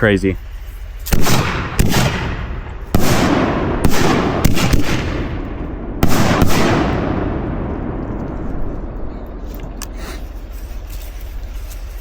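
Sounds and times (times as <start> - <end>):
firework booms with echo: 1.1 - 9.1.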